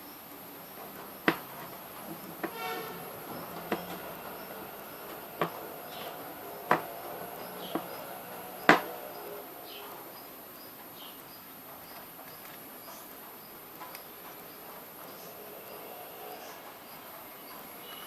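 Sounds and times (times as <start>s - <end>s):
sharp taps or clicks: 5.1s - 9.0s.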